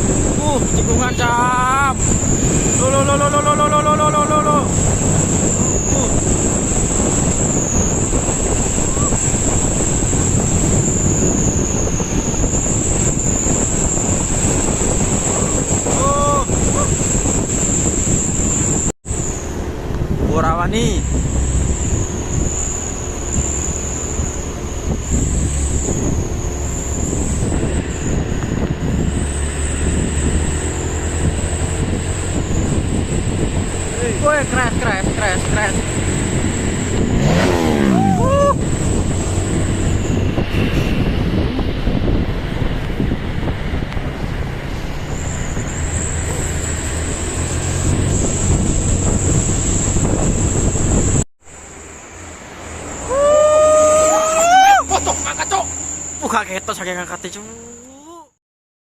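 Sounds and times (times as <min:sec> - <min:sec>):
high-pitched whine: 0:00.0 - 0:58.3
truck engine and road rumble: 0:00.0 - 0:58.4
thin high whine: 0:32.2 - 0:44.0, 0:44.7 - 0:58.3.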